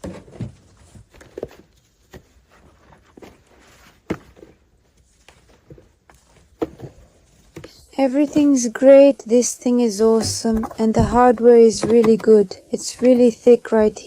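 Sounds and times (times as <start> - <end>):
footsteps: 10.1 - 11.4.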